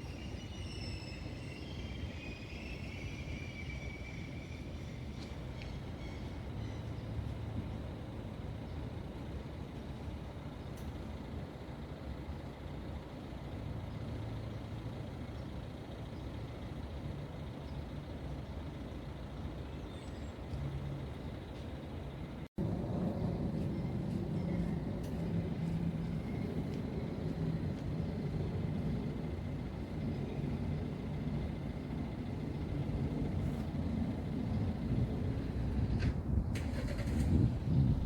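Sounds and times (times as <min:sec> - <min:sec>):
road traffic rumble: 0:00.0 - 0:38.0
vehicles passing: 0:03.8 - 0:38.0.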